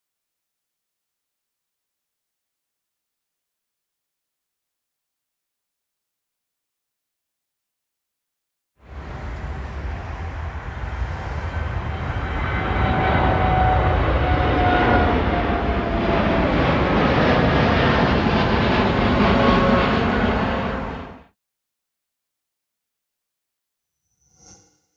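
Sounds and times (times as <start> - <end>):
jet airliner engines running: 8.8 - 21.3.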